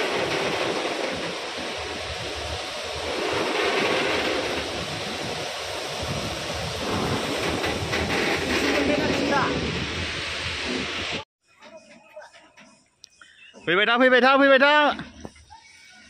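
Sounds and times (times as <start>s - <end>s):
steady rushing hiss: 0.0s - 11.2s.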